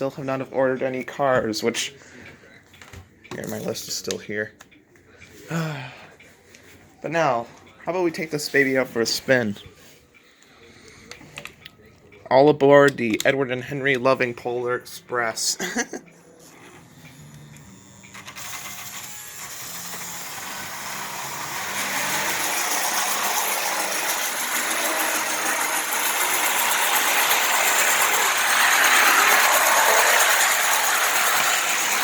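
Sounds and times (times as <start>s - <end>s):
toy train motor whirring: 16.4s - 32.0s
wheels rattling over rails: 19.5s - 32.0s.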